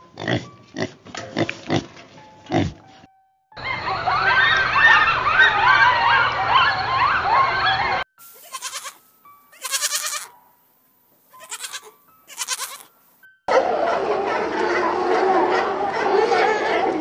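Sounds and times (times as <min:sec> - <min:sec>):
young goat bleating: 0:08.3 - 0:10.3, 0:11.3 - 0:12.9.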